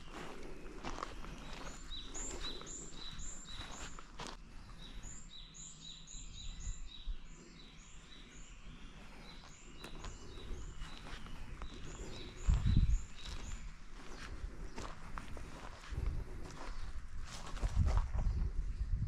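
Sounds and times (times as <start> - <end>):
footsteps: 0.0 - 4.4, 9.0 - 18.2.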